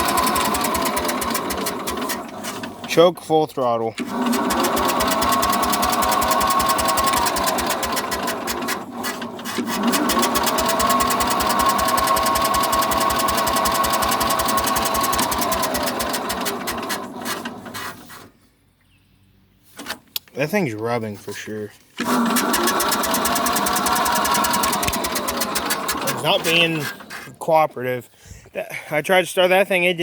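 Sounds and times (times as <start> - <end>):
starter cranking engine: 0.0 - 18.3, 22.0 - 27.4.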